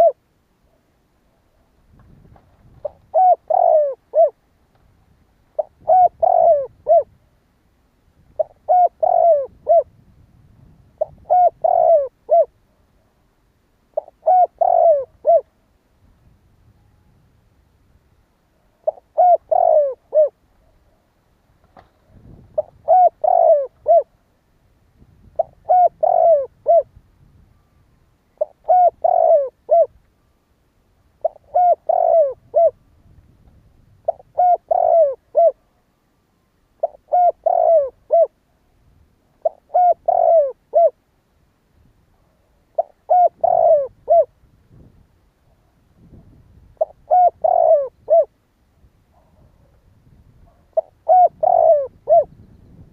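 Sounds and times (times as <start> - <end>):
dove cooing: 0.0 - 0.2, 1.4 - 4.4, 5.5 - 7.2, 8.3 - 10.0, 11.0 - 12.6, 14.0 - 15.5, 18.7 - 21.0, 22.1 - 24.2, 25.3 - 26.9, 28.4 - 30.0, 31.2 - 32.8, 34.0 - 35.8, 36.8 - 38.4, 39.4 - 41.0, 42.2 - 44.9, 46.7 - 48.4, 49.2 - 52.9.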